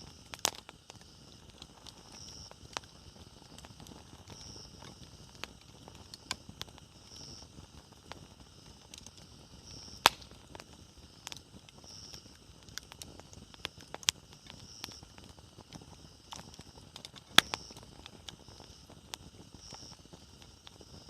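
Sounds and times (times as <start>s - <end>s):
wood fire crackling: 0.0s - 21.0s
sharp loud pop: 10.0s - 10.3s.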